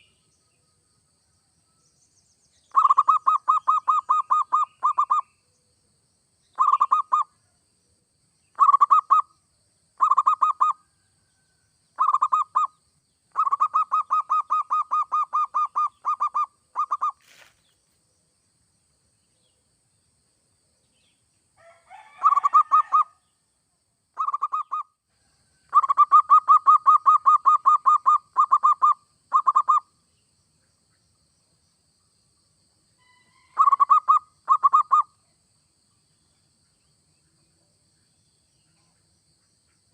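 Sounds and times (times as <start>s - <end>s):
dove cooing: 2.7s - 5.2s, 6.6s - 7.2s, 8.6s - 9.2s, 10.0s - 10.8s, 13.4s - 17.4s, 22.0s - 23.1s, 25.7s - 29.8s, 33.5s - 35.1s.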